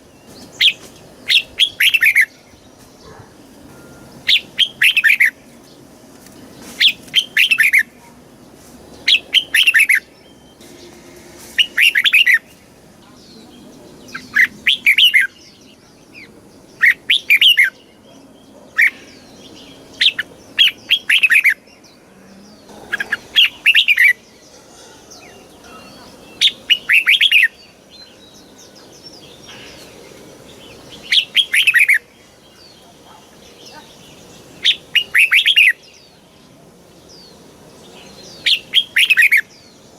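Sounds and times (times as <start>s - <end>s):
bird warbling phrases: 22.6s - 27.5s.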